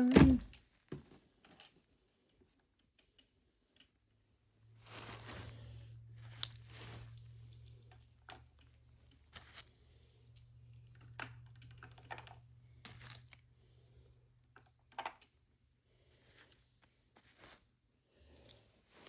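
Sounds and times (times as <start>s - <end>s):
low steady hum: 4.2s - 14.7s.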